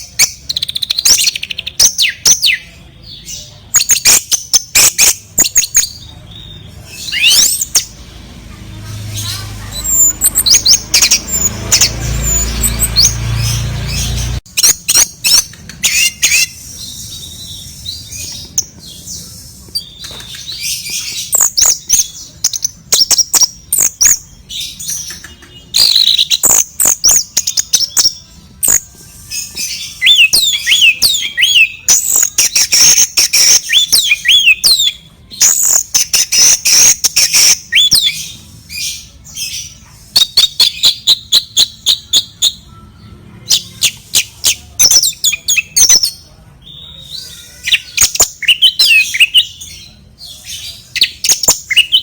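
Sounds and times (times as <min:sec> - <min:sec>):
bird chirps and squawks: 0:08.8 - 0:42.7
sharp clicks and taps: 0:15.4 - 0:15.9, 0:19.7 - 0:20.6.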